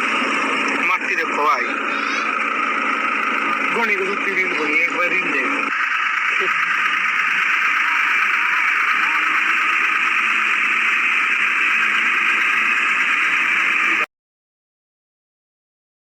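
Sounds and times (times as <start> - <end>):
loud steady hiss: 1.8 - 14.1.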